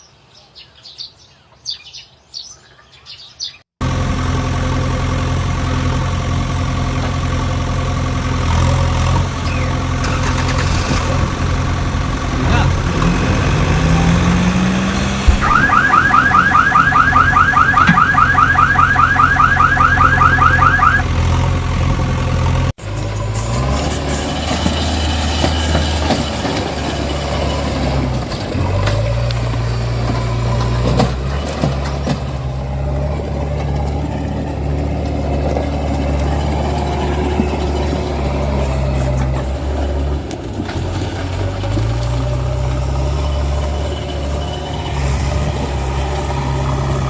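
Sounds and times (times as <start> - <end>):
heavy diesel engines running: 3.8 - 47.0
electronic alarm warbling: 15.3 - 21.0.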